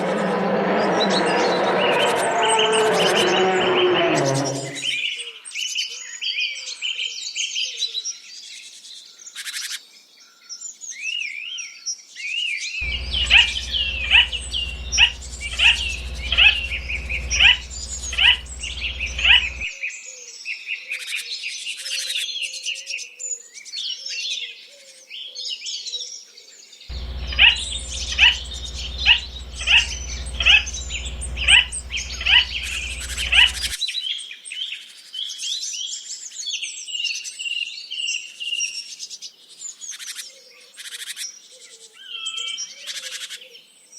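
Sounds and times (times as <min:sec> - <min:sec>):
birds chirping and singing: 0:12.8 - 0:19.7, 0:26.9 - 0:33.8
loud repeating bird call: 0:12.8 - 0:19.7, 0:26.9 - 0:33.8
low hum: 0:12.8 - 0:19.7, 0:26.9 - 0:33.8.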